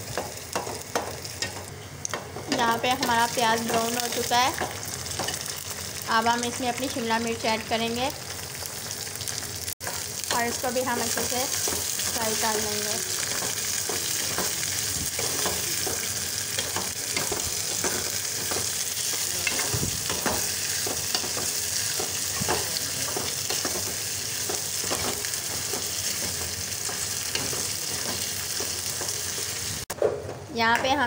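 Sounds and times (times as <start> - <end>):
vegetables sizzling in oil: 0.0 - 30.0.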